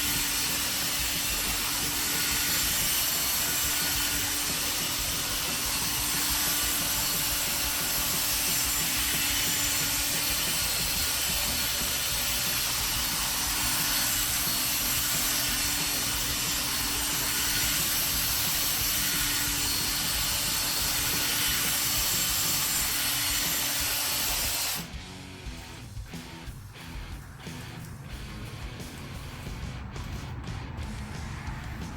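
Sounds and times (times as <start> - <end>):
electric drill polishing: 0.0 - 25.0.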